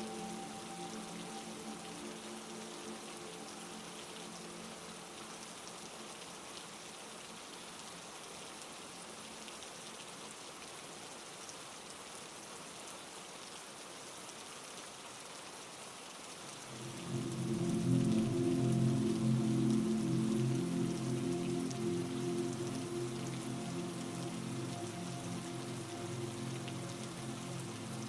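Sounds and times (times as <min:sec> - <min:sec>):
heavy rain falling: 0:16.4 - 0:28.0.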